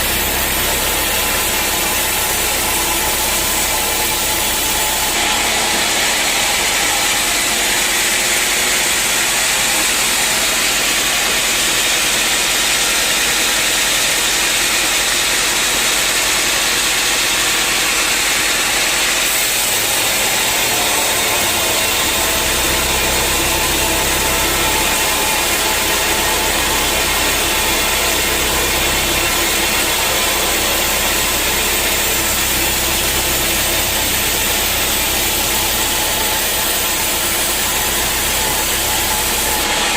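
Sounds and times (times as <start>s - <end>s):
deep hum: 0.0s - 11.4s, 19.2s - 39.9s
sawmill machinery running: 0.0s - 39.9s.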